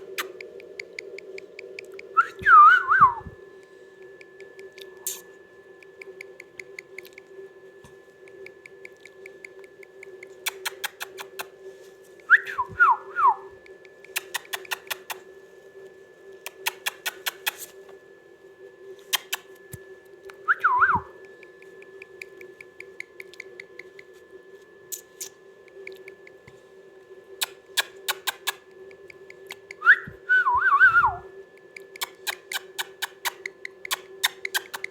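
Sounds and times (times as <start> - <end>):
parrot clicks: 0.0 - 2.0, 8.6 - 11.5, 13.9 - 15.2, 16.5 - 17.7, 19.1 - 19.4, 31.8 - 34.9
steady hum: 0.0 - 34.9
parrot whistling: 1.8 - 3.4, 12.2 - 15.2, 20.4 - 21.2, 29.3 - 34.9.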